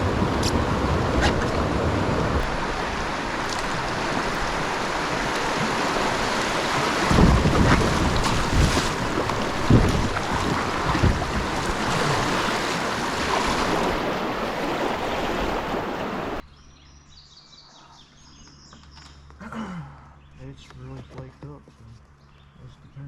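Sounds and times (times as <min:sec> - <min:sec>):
rushing river water: 0:00.0 - 0:16.4
wind on microphone: 0:00.0 - 0:16.4
faint bird chirps: 0:16.4 - 0:19.2.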